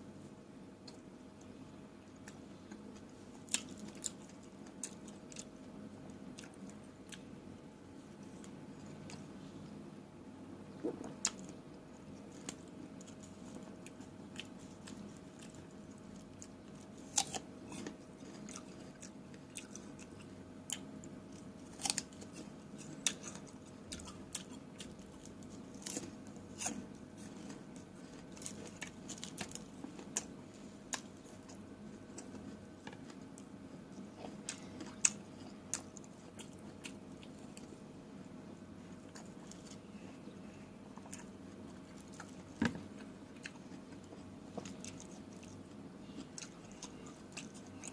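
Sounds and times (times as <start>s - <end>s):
wet chewing of fruit: 10.7s - 37.8s, 38.9s - 47.9s.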